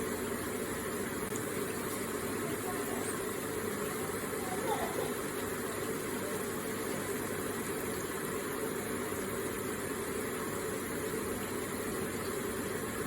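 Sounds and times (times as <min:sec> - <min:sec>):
water running and splashing: 0:00.1 - 0:13.0.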